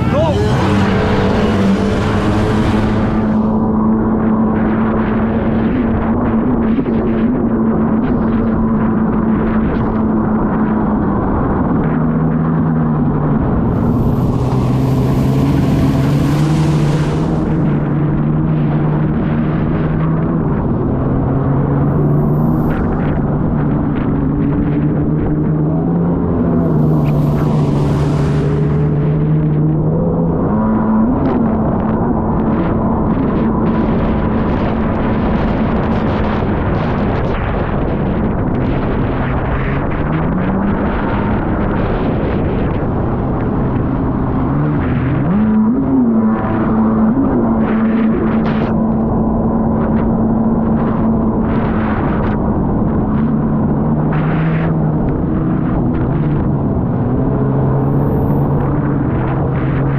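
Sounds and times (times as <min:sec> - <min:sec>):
jet ski engine running hard: 0:00.0 - 0:59.9
water spray rushing: 0:13.7 - 0:17.9.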